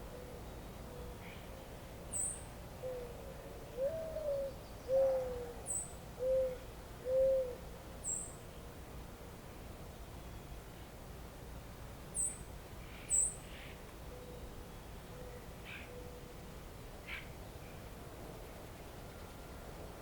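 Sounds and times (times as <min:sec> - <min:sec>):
low hollow bird hoots: 0:00.0 - 0:08.3, 0:15.1 - 0:16.3.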